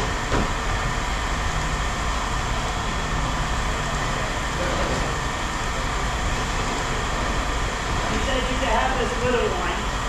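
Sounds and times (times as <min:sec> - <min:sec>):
machinery hum: 0:00.0 - 0:10.0.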